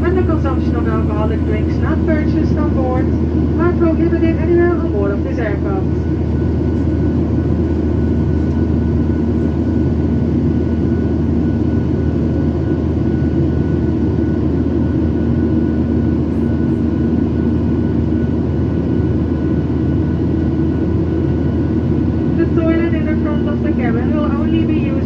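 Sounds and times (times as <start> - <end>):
low hum: 0.0 - 12.4
faint steady whine: 0.0 - 12.6
airliner cabin engine rush: 0.0 - 25.0.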